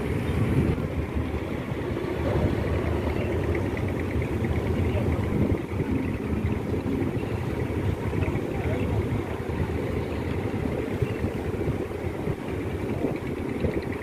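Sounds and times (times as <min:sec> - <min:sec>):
ship engines rumbling: 0:00.0 - 0:14.0
indistinct voices: 0:01.7 - 0:11.5.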